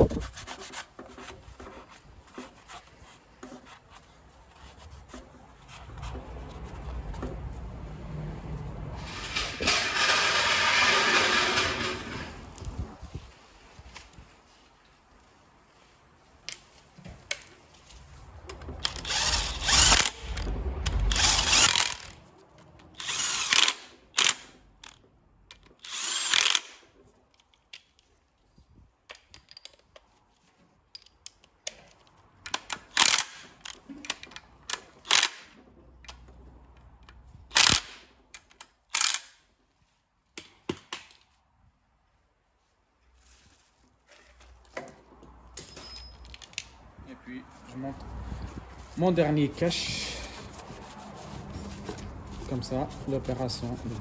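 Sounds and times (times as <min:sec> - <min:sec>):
power tool driving bolts: 0:09.0 - 0:12.7, 0:18.8 - 0:22.2, 0:22.9 - 0:25.0, 0:25.6 - 0:26.8, 0:32.5 - 0:35.6, 0:37.5 - 0:39.4.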